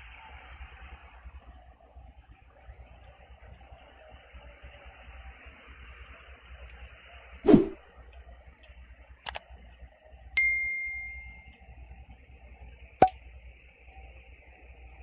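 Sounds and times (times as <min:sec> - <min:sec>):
faint steady hiss: 0:08.0 - 0:15.0
sharp clicks: 0:09.3 - 0:09.5
bell-like metallic ding: 0:10.4 - 0:11.5.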